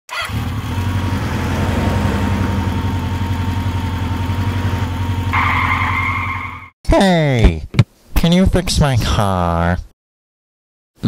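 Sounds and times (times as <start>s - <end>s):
car engine idling: 0.3s - 5.8s.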